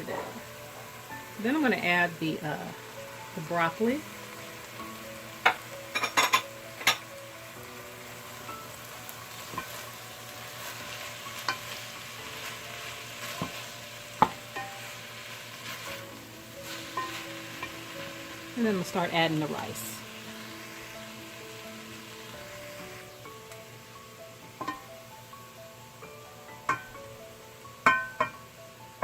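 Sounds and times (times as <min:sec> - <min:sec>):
food sizzling in a frying pan: 0:00.0 - 0:29.0
spoon stirring: 0:16.6 - 0:18.1.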